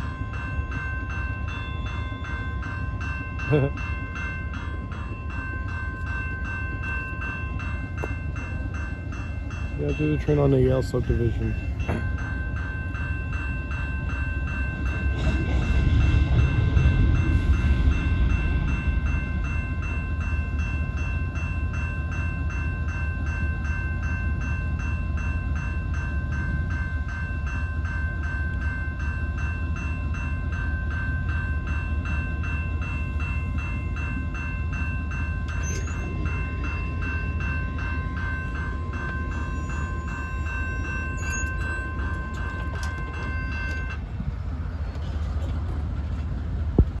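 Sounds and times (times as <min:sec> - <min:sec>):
level crossing bell ringing: 0:00.0 - 0:15.0
freight train rumbling: 0:00.0 - 0:47.0.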